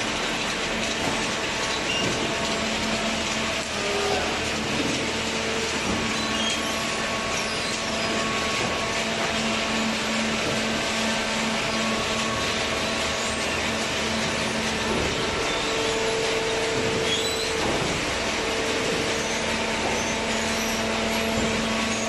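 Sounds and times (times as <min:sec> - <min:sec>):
hydraulic pump motor humming: 0:00.0 - 0:22.0.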